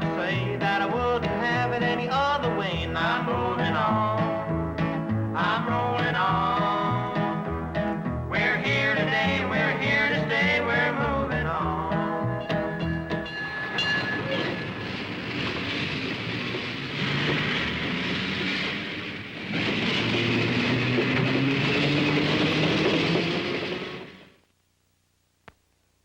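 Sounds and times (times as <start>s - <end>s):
country song: 0.0s - 14.6s
freight train passing: 13.0s - 24.4s.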